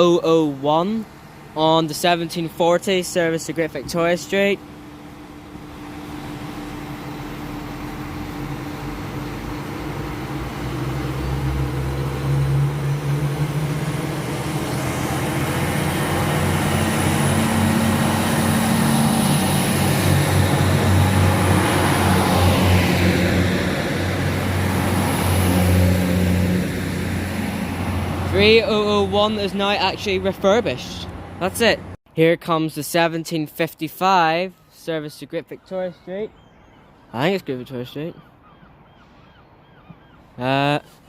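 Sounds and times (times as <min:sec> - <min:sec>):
diesel train engines accelerating: 0:00.0 - 0:32.0.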